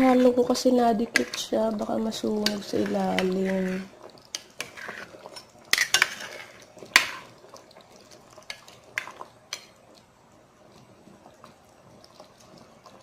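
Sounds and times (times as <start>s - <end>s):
spoon stirring a pot: 0.0s - 9.8s.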